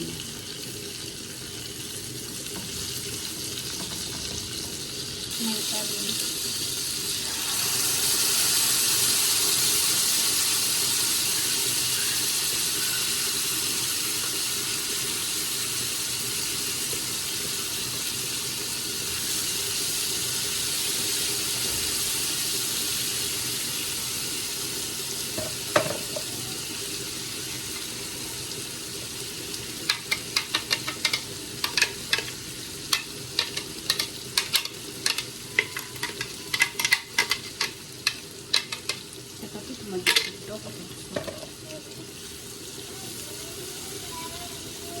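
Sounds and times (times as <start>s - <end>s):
food sizzling in a pan: 0.0s - 45.0s
spoon scraping a pan: 29.9s - 39.1s, 40.0s - 40.4s.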